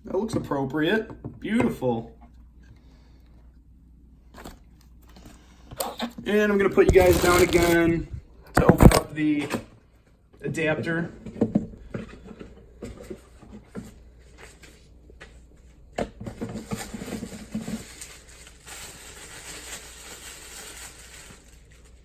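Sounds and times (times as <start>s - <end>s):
cardboard packaging rustling: 6.5s - 9.1s, 16.3s - 22.0s.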